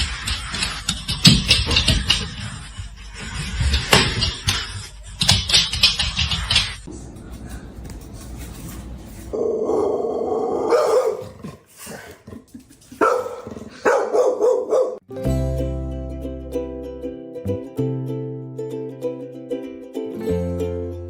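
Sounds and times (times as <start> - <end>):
dog barking and growling: 9.4 - 15.0.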